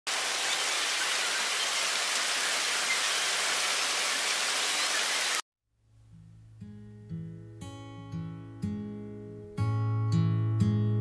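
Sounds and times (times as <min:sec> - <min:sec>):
rain on hard paving: 0:00.1 - 0:05.4.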